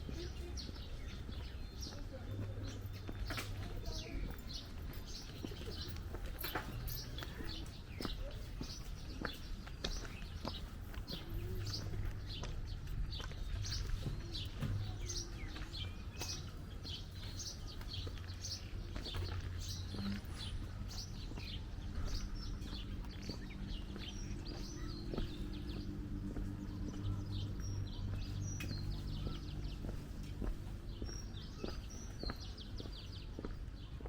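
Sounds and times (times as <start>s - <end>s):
low city background hum: 0.0s - 34.0s
small birds chirping: 0.0s - 34.0s.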